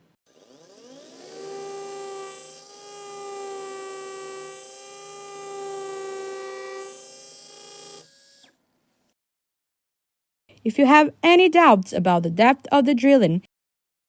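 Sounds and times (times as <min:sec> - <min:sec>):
surgical drill high whine: 0:00.3 - 0:08.6.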